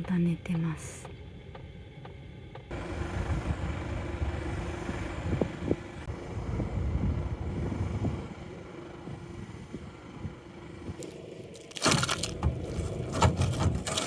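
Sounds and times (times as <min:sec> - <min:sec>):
low rumble: 0:00.0 - 0:13.9
packed snow crunching and scraping: 0:11.0 - 0:14.0.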